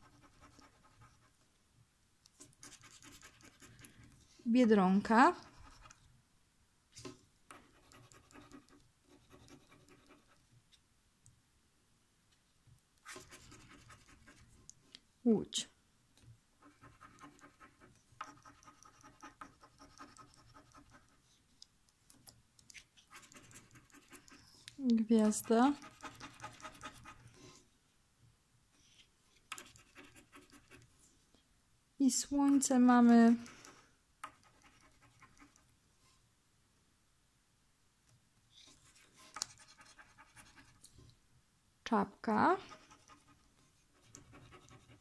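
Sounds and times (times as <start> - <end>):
scratch card scratching: 2.4 - 4.2, 7.0 - 10.4, 13.0 - 14.5, 16.6 - 21.2, 22.7 - 24.4, 29.5 - 30.8, 38.6 - 40.8
scratching a lottery card: 2.4 - 4.2, 13.0 - 14.5, 23.0 - 24.3.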